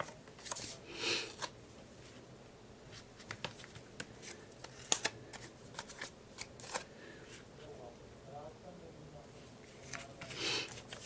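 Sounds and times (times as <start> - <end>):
paper rustling: 0.0 - 1.5, 2.9 - 6.9, 9.7 - 11.0.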